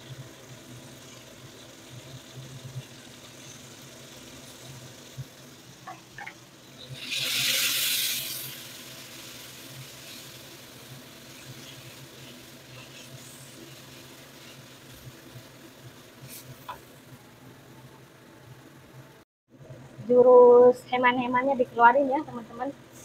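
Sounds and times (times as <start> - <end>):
sambal sizzling in hot oil: 0.0 - 18.0.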